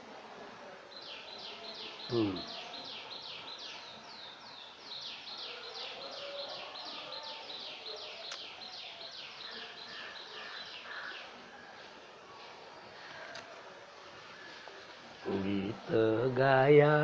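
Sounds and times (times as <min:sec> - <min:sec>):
bird chirping: 0:00.9 - 0:12.0.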